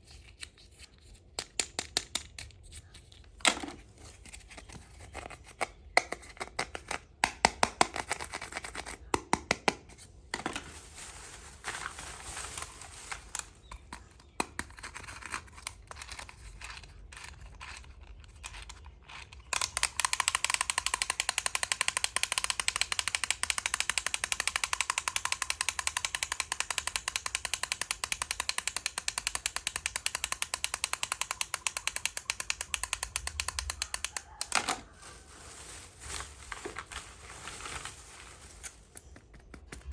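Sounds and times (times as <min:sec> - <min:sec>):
toy parts clicking and tapping: 0:00.1 - 0:09.8, 0:13.4 - 0:35.0, 0:38.7 - 0:39.9
rapid mechanical clicking: 0:19.5 - 0:34.5.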